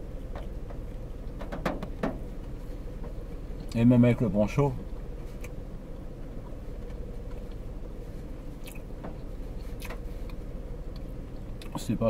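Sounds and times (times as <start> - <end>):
car cabin hum: 0.0 - 12.0
person chewing sandwich: 8.5 - 11.7.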